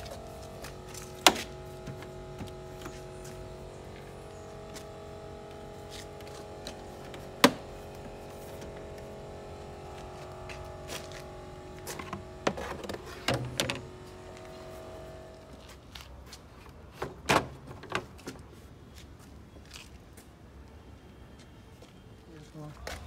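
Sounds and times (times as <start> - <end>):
steady hum with held tones: 0.0 - 16.1.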